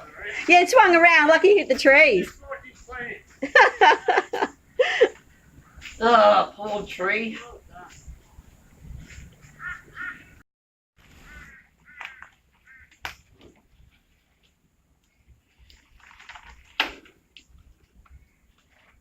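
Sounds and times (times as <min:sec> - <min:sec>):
harsh animal calls: 0:09.5 - 0:10.4, 0:11.2 - 0:13.0.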